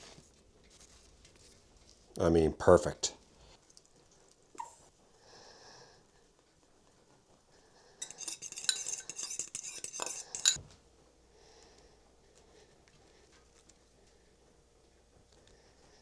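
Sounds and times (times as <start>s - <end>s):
hard objects clattering: 8.0s - 10.6s.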